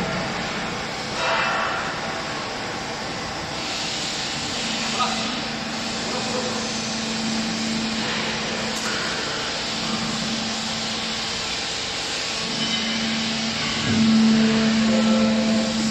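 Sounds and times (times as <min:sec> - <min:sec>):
baler machine humming: 0:04.7 - 0:15.9.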